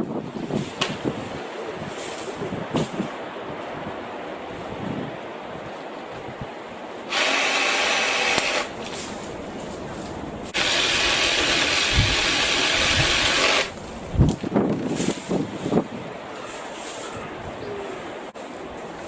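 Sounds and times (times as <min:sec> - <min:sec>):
cordless saw cutting branches: 0:07.1 - 0:08.9, 0:10.5 - 0:13.8.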